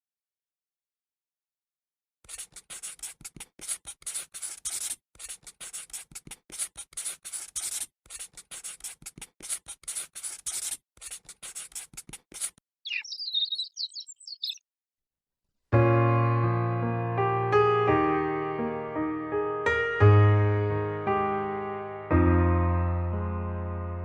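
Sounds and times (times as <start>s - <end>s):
scratching strokes: 2.3s - 12.6s
high chirps: 12.8s - 14.6s.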